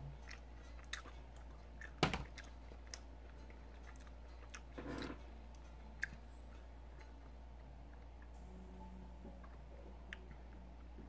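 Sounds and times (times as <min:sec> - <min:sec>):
low steady hum: 0:00.0 - 0:11.0
chewing and mouth sounds: 0:00.2 - 0:06.2.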